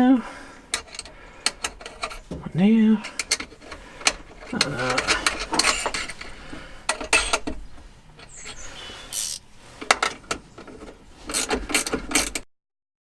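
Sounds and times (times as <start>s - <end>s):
metal clicks of hand tools: 0.7s - 2.4s, 3.0s - 7.6s, 8.2s - 12.5s
scraping rub: 8.2s - 10.2s.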